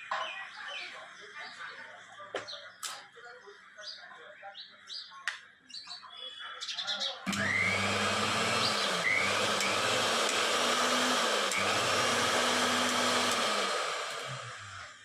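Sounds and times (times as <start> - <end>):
mixer grinder motor whirring: 7.3 - 15.0.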